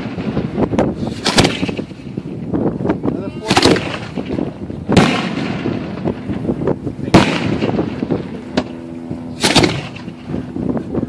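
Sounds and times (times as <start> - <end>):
fireworks booming: 0.0 - 2.7, 3.4 - 8.7, 9.3 - 10.4
thin firework crack: 1.0 - 2.0, 9.4 - 10.1.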